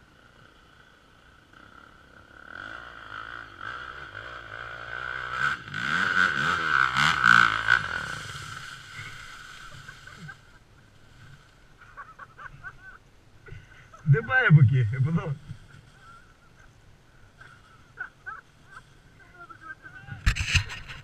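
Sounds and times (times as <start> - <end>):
dirt bike engine revving: 0.2 - 11.4.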